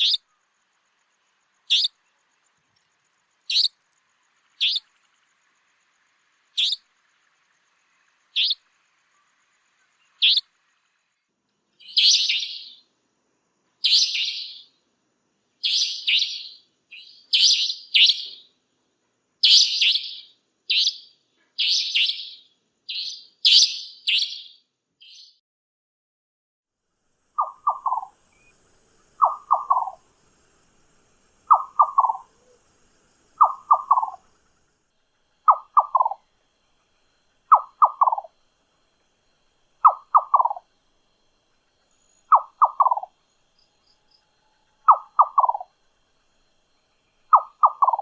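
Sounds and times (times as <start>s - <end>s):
nightjar calling: 0.0s - 0.6s, 1.6s - 2.2s, 3.4s - 3.8s, 4.5s - 5.4s, 6.5s - 10.6s, 11.8s - 12.9s, 13.8s - 14.8s, 15.6s - 18.5s, 19.4s - 25.4s, 27.4s - 48.0s.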